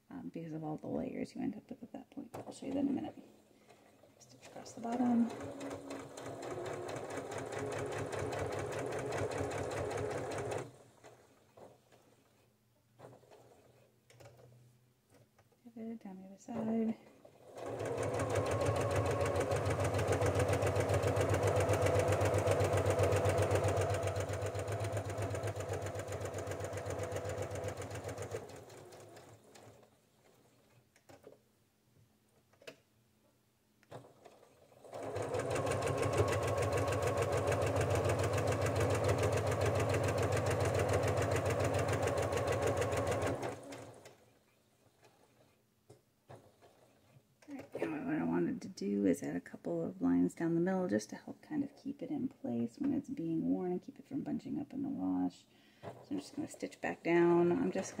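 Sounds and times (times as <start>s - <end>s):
sewing machine stitching: 2.3s - 15.2s, 16.5s - 31.4s, 33.8s - 45.6s, 46.3s - 48.3s, 55.7s - 58.0s.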